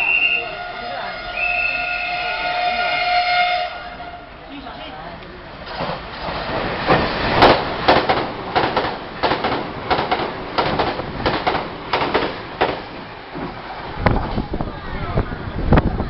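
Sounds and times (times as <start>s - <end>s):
train wheels clacking over rail joint: 5.7s - 13.6s.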